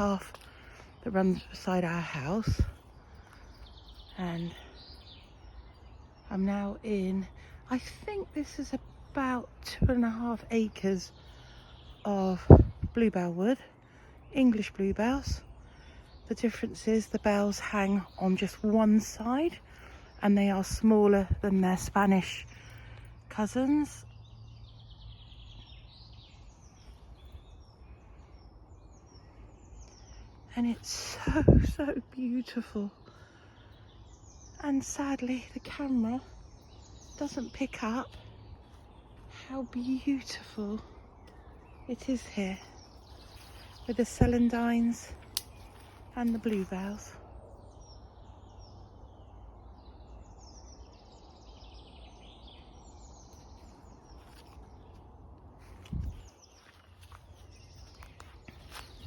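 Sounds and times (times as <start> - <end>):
small birds singing: 0.0 - 59.0.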